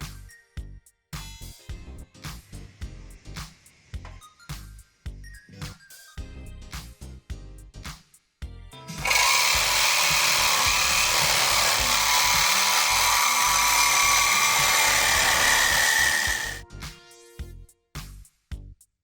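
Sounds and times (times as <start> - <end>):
background music: 0.0 - 18.7
power tool running: 9.0 - 16.6.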